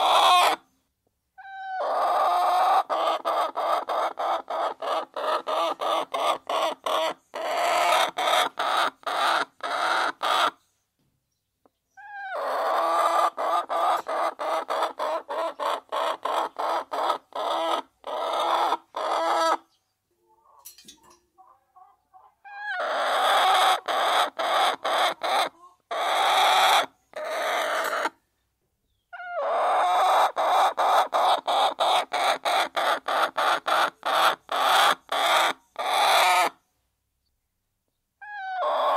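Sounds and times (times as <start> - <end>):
hens clucking: 0.0 - 0.6, 1.4 - 10.6, 12.0 - 28.2, 29.1 - 36.6.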